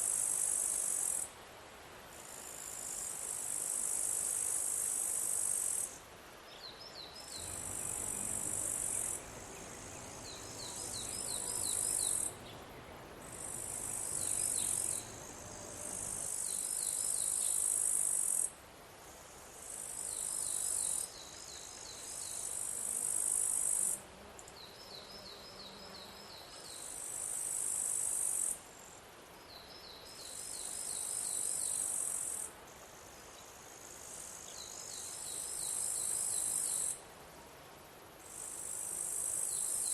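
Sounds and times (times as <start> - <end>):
insects buzzing trill: 7.4 - 16.3
insect chirps: 7.4 - 16.4.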